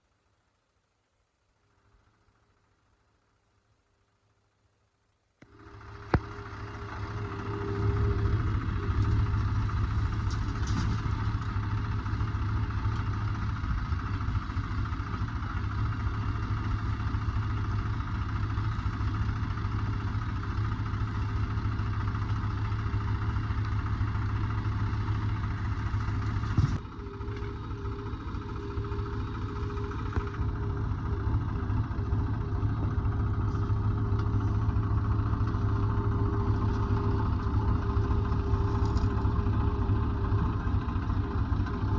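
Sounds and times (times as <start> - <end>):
machine whine: 5.4 - 20.8, 25.0 - 41.9
heavy machinery diesel engine: 5.4 - 41.9.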